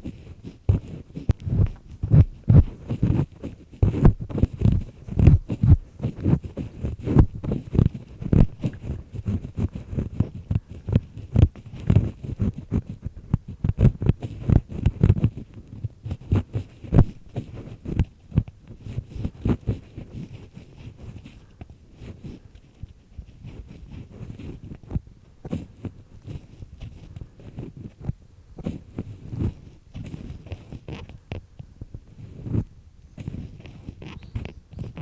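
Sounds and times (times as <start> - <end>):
ear pick scraping: 0.0 - 35.0
dull low thumps: 7.1 - 9.1.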